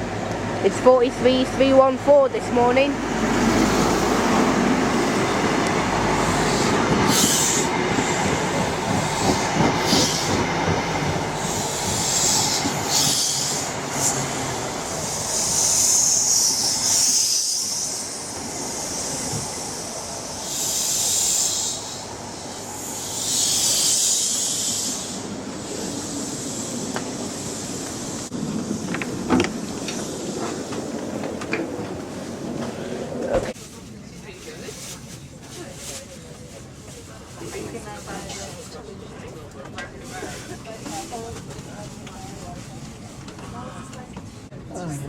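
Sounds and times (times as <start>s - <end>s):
train wheels rumbling on rail: 0.0s - 44.7s.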